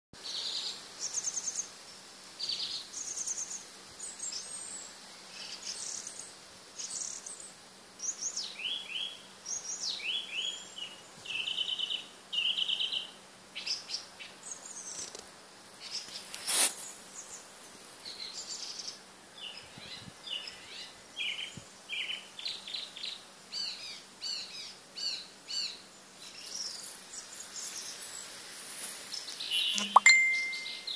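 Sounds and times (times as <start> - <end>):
small birds singing and chirping: 0.2 - 15.2, 15.8 - 30.9
sharp click: 29.8 - 30.1.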